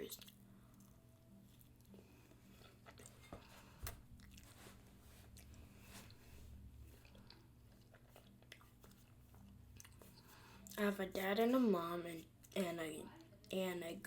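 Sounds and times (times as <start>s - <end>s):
chewing food: 0.0s - 6.2s, 6.8s - 10.8s.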